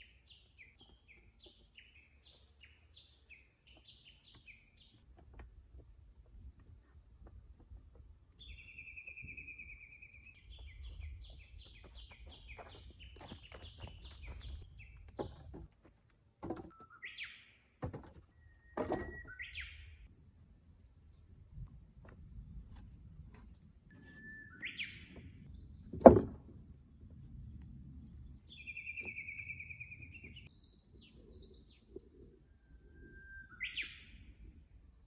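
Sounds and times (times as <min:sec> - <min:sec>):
songbird singing: 0:00.0 - 0:06.4, 0:07.7 - 0:15.7, 0:16.5 - 0:20.1, 0:23.9 - 0:26.4, 0:28.1 - 0:35.0
sharp knocks: 0:25.9 - 0:26.5.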